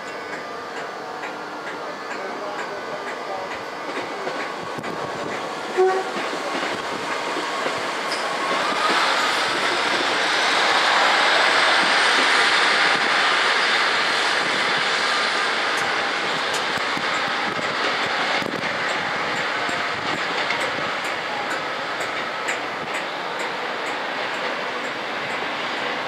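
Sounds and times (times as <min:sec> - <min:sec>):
train rushing along rails: 0:00.0 - 0:26.0
train horn toot: 0:05.7 - 0:06.3.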